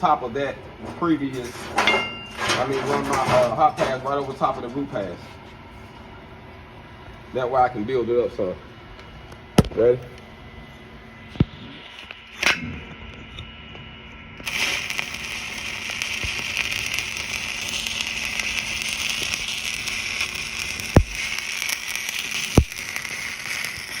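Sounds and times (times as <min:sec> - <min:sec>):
sharp pops: 0:09.6 - 0:09.8, 0:20.8 - 0:23.9
welding arc crackling: 0:14.4 - 0:24.0.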